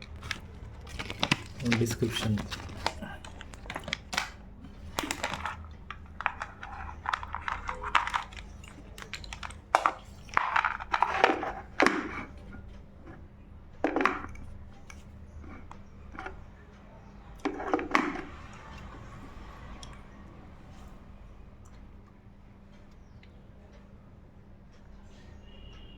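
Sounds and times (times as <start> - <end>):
packaging and papers rustling: 0.0 - 12.3
soft speech: 1.5 - 3.5.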